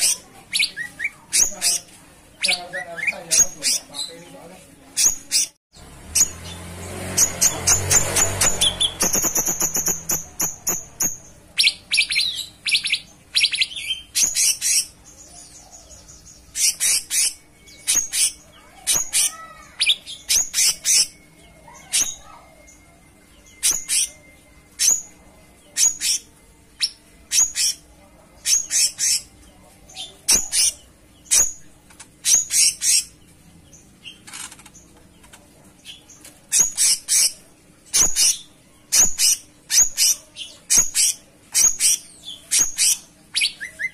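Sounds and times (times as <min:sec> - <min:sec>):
bulbul chirping: 0:07.2 - 0:14.9.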